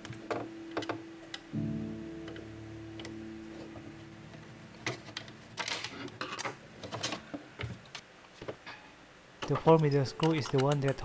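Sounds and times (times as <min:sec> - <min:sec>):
held background music note: 0:00.0 - 0:05.5
small clicks of handling parts: 0:09.4 - 0:11.0.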